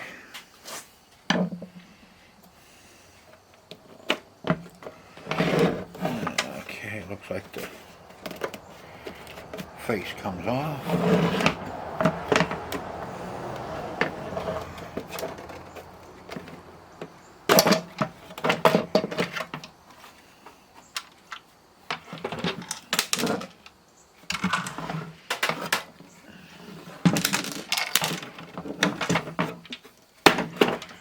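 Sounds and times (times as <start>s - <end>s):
small parts clicking and clinking: 27.0s - 28.4s.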